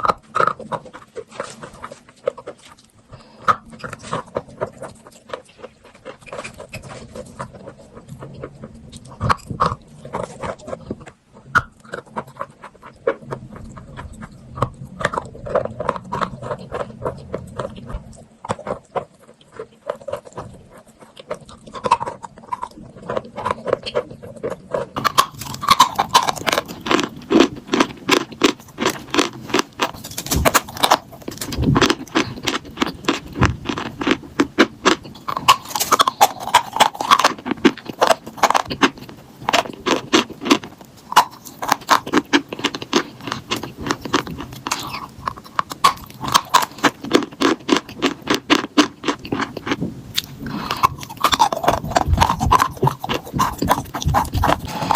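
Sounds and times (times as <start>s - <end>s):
crunching and chewing chalk: 0.0s - 54.9s.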